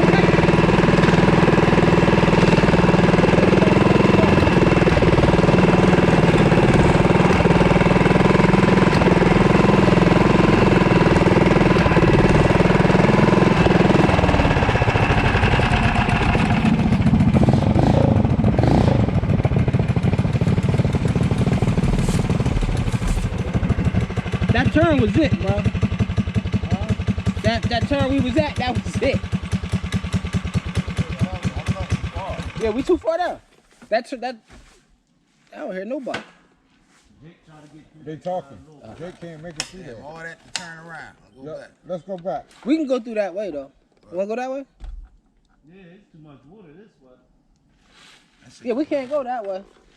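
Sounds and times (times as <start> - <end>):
mini bike engine running: 0.0 - 33.0.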